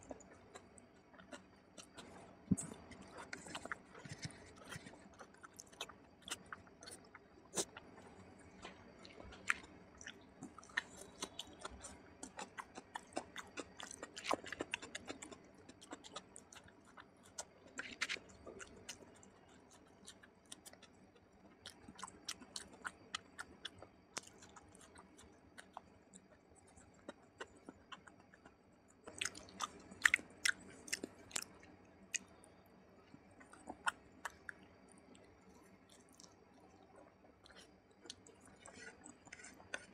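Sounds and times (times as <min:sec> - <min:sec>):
chewing and wet mouth smacks: 0:08.6 - 0:32.4, 0:33.1 - 0:39.9.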